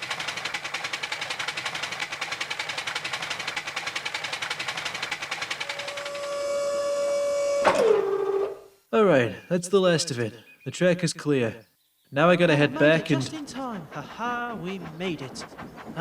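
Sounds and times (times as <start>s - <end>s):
steam locomotive chuffing: 0.0s - 7.8s, 12.5s - 16.0s
steam whistle blowing: 5.6s - 8.7s.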